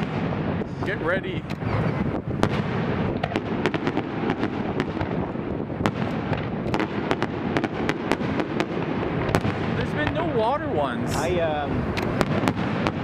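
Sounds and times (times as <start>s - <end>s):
fireworks crackling bangs: 0.0s - 13.0s.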